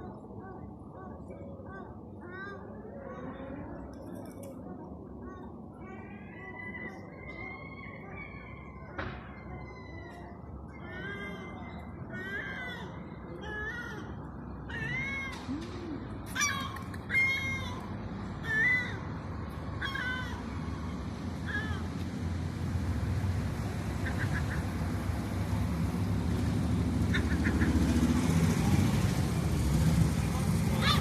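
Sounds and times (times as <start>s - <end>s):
traffic rumble: 0.0s - 31.0s
seagull calling: 19.8s - 20.5s, 23.9s - 25.0s, 27.0s - 28.1s, 30.8s - 31.0s.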